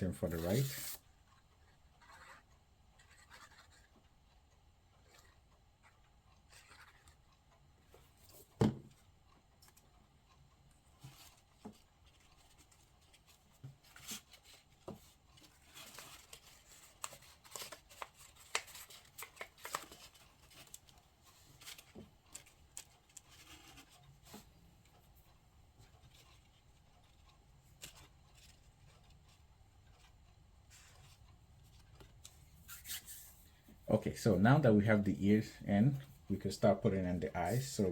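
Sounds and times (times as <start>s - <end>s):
paper and card rustling: 0.0s - 1.0s, 11.0s - 24.5s, 25.8s - 30.1s, 30.7s - 33.4s, 35.1s - 37.9s
thump on table: 8.6s - 8.9s.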